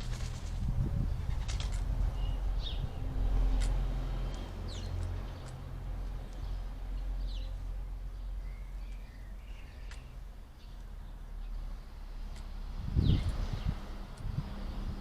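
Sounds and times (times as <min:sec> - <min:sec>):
bird chirps: 0:02.1 - 0:03.1, 0:06.3 - 0:11.6.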